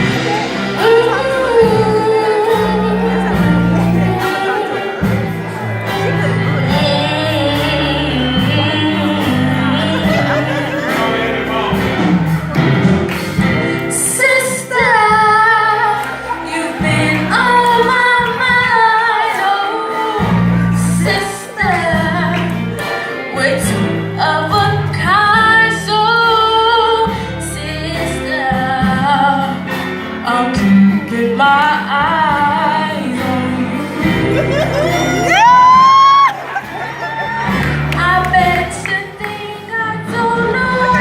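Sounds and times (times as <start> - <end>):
woman singing: 0.0 - 11.1, 13.6 - 36.4, 37.6 - 41.0
low bass line: 0.0 - 14.2
instrumental accompaniment: 0.0 - 41.0.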